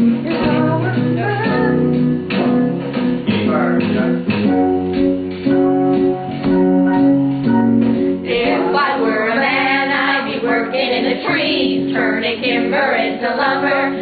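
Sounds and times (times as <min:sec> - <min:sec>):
held accompaniment chords: 0:00.0 - 0:14.0
group of people singing together: 0:08.2 - 0:14.0.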